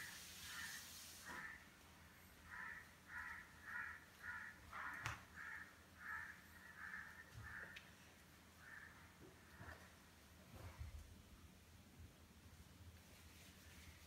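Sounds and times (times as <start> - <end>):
faint bird calls: 0.0 - 1.7, 2.3 - 10.0.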